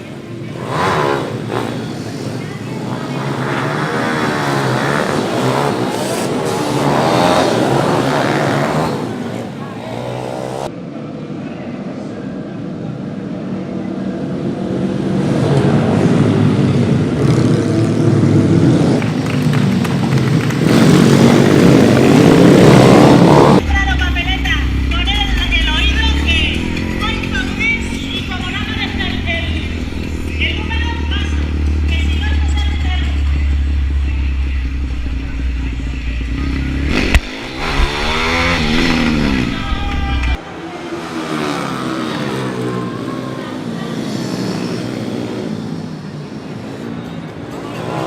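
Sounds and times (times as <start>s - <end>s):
pitbike engines revving hard: 0.4s - 10.7s, 15.0s - 48.0s
motorbike engine revving past: 0.5s - 2.4s, 20.1s - 23.6s, 36.1s - 40.1s.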